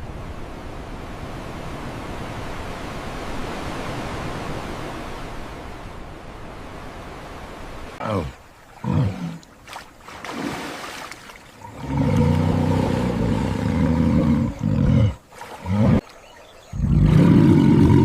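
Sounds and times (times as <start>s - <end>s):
large animal roaring: 11.7s - 16.0s, 16.8s - 18.0s.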